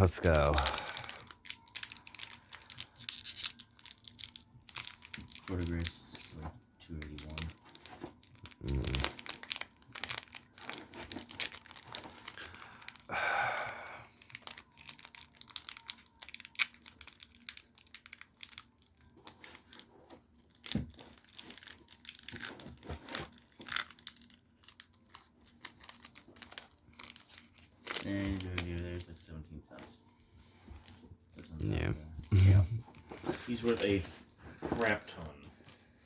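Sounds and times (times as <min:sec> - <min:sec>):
foil wrapper crinkling: 0:00.0 - 0:31.6, 0:32.3 - 0:36.0.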